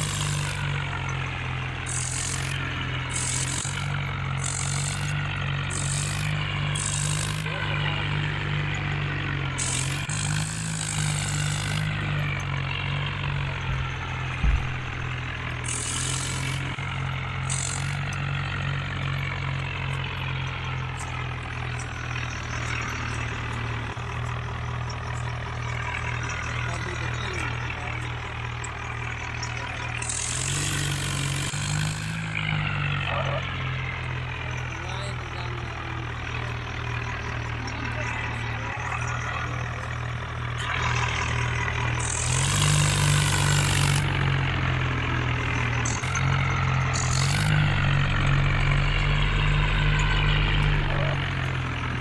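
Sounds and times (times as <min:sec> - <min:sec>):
tractor engine running: 0:00.0 - 0:52.0
low thump: 0:13.5 - 0:15.2.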